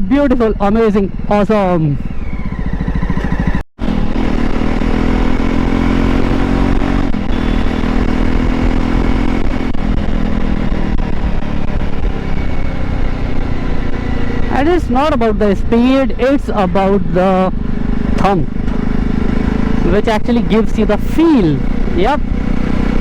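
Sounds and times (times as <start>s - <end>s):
motorcycle engine thumping: 2.2s - 5.8s, 17.5s - 20.0s.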